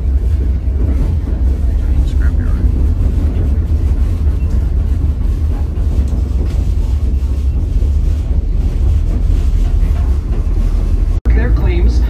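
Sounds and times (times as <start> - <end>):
passenger car rumbling on track: 0.0 - 12.0.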